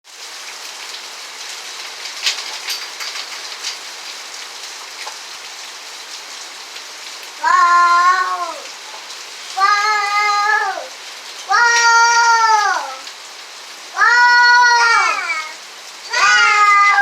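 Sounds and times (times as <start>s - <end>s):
rain hiss: 0.0s - 17.0s
cat meowing: 7.4s - 8.6s, 9.6s - 10.9s, 14.0s - 17.0s.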